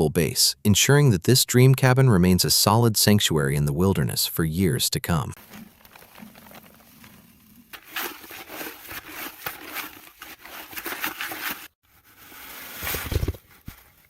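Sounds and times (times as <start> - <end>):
shovel scraping soil and gravel: 5.4 - 14.0.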